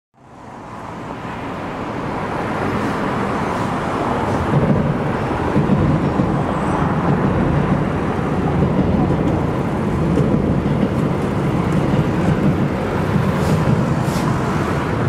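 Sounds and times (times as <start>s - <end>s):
road traffic: 0.2s - 15.0s
train rumbling over bridge: 0.2s - 15.0s.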